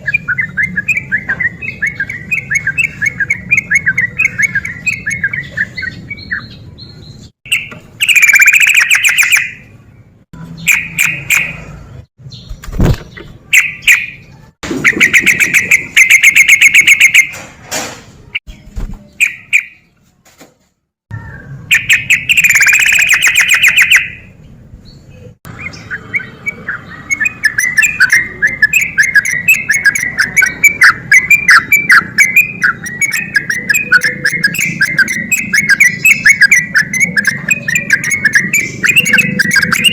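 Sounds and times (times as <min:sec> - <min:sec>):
bulbul singing: 0:00.0 - 0:17.4, 0:18.4 - 0:20.0, 0:21.2 - 0:39.9.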